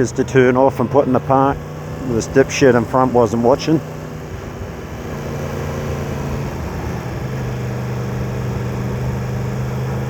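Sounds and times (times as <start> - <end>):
motorcycle engine running at low revs: 0.0 - 10.0.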